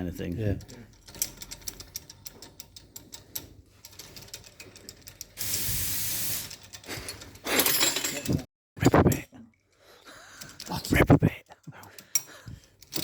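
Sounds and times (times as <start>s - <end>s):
loud hiss: 5.4s - 6.5s.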